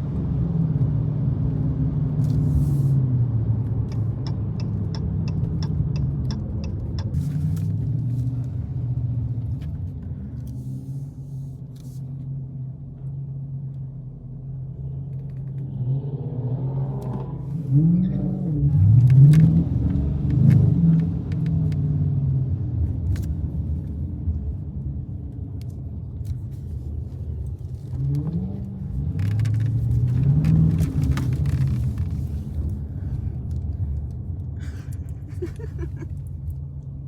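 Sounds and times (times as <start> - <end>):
car engine accelerating: 14.5 - 23.6, 27.3 - 37.0.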